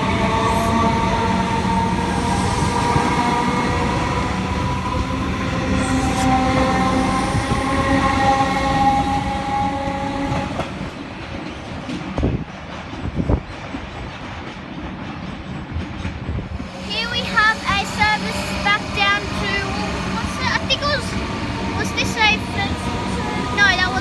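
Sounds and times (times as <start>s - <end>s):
electric train whine rising: 0.0s - 11.2s, 16.4s - 24.0s
wheels rumbling on rails: 0.0s - 24.0s.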